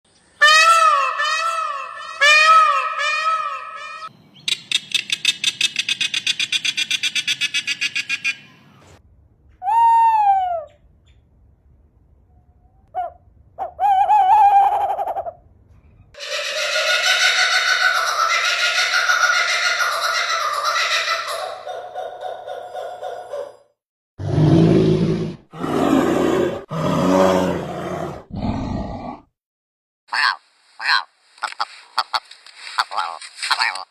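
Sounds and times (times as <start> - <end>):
higher-pitched animal sound: 0.4 - 4.1, 16.2 - 21.7
bird calls: 0.9 - 9.0, 13.0 - 23.6
rapid bird trill: 3.5 - 8.7
animal giving low drawn-out calls: 24.2 - 29.3.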